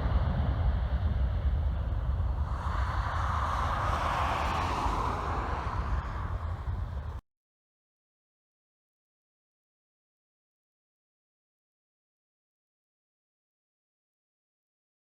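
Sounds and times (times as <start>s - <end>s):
jet engines roaring: 0.0s - 7.2s
wind rumble on microphone: 0.0s - 7.2s.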